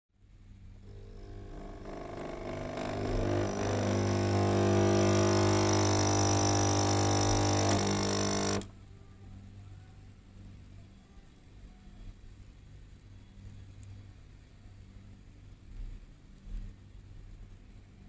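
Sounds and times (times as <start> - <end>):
coffee machine pump buzzing: 0.8 - 8.7.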